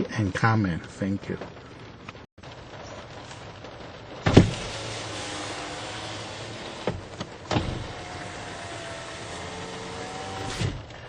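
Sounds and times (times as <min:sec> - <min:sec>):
power window motor running: 0:04.3 - 0:11.0
window glass stopping clunk: 0:04.3 - 0:11.0.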